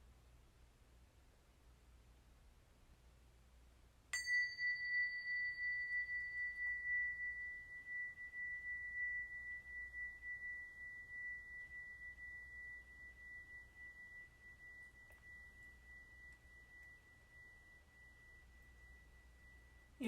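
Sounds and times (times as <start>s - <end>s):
small metal chime ringing: 4.2s - 20.0s.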